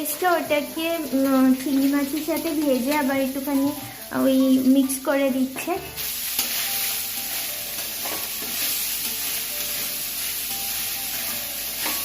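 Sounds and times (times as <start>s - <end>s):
rice and prawns sizzling in a pan: 0.0s - 12.0s.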